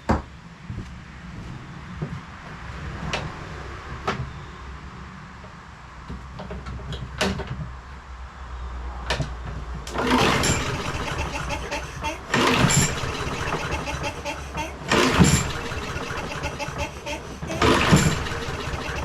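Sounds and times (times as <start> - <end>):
mower recoil starter pulls: 9.9 - 19.0.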